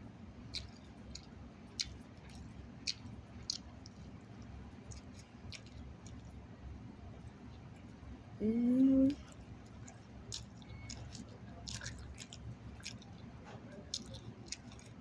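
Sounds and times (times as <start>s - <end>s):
wet mouth clicks and smacks: 0.5s - 4.1s, 4.9s - 6.3s, 9.8s - 13.2s.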